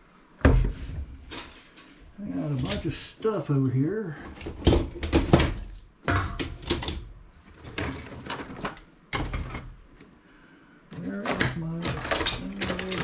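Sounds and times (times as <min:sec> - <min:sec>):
tools and metal parts clattering: 0:01.2 - 0:03.0, 0:04.2 - 0:10.0, 0:11.0 - 0:13.0.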